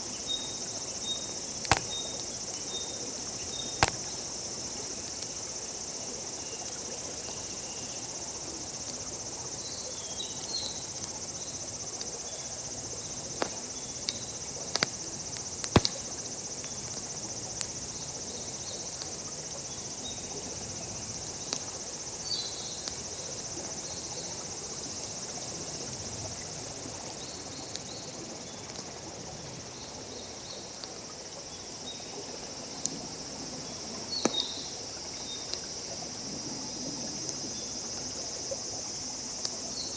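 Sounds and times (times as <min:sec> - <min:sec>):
crickets trilling: 0:00.0 - 0:39.9
campfire crackling: 0:01.4 - 0:02.6, 0:03.2 - 0:05.3, 0:12.8 - 0:17.8.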